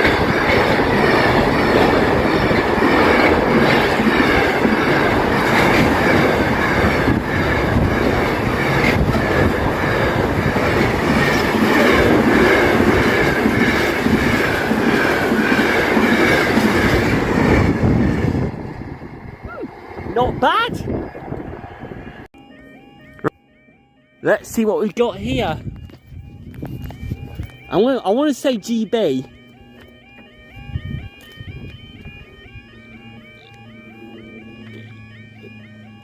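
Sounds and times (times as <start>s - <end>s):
train wheels clattering on rails: 0.0s - 18.9s.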